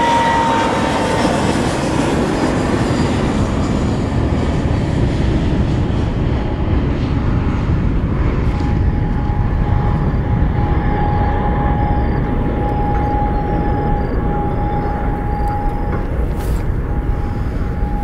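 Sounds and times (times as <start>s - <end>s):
jet engines roaring: 0.0s - 18.0s
thin steady whine: 7.7s - 18.0s.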